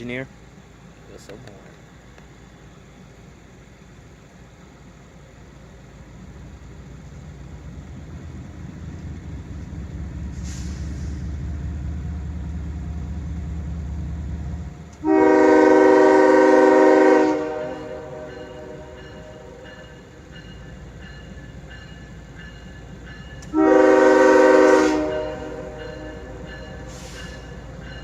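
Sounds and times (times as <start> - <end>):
locomotive engine rumble: 0.0 - 28.0
short air hiss: 10.3 - 11.4, 26.9 - 27.6
train air horn: 15.0 - 19.7, 23.4 - 27.5.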